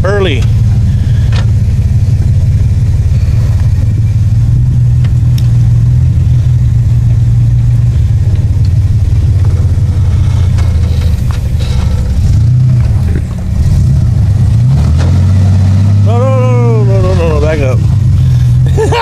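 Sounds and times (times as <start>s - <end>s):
truck engine running at low revs: 0.0s - 19.0s.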